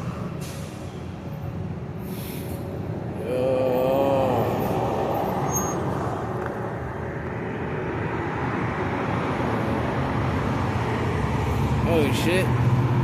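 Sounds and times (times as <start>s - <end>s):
wind and road rumble: 0.0s - 13.0s.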